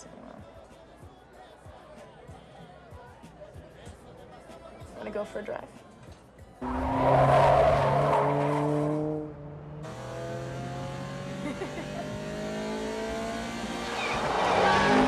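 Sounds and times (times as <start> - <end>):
car passing by: 6.6 - 11.3, 12.1 - 15.0
sports car engine revving: 6.6 - 15.0.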